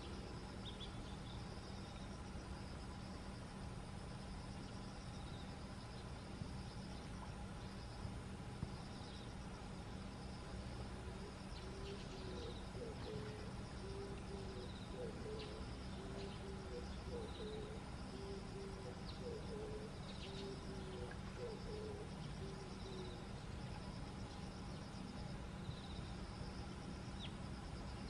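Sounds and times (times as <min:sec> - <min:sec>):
faint high chirps and trills: 0:00.0 - 0:28.0
bird cooing: 0:11.0 - 0:23.3.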